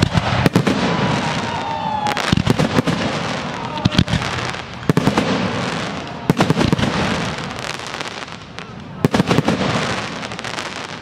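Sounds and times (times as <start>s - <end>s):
crackle and hiss of burning stars: 0.0s - 11.0s.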